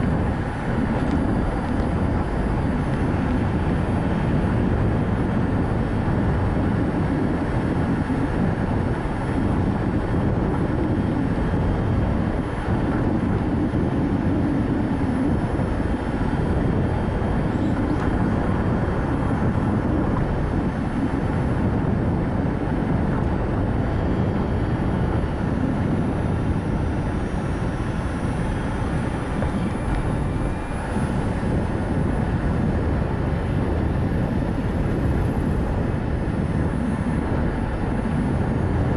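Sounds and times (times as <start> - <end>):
tyres rumbling on road: 0.0 - 38.9
wind noise: 0.0 - 38.9.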